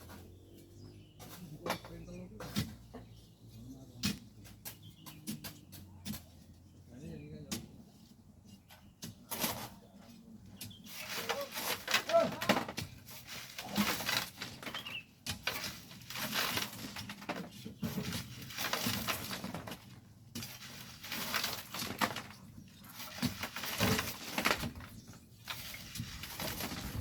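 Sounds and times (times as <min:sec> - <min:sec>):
shovels scraping sand and gravel: 0:09.1 - 0:27.0.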